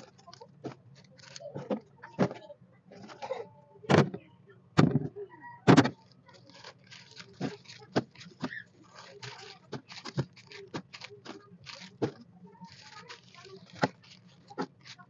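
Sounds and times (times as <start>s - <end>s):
plastic packaging rustling: 0.0s - 1.9s, 5.9s - 15.0s.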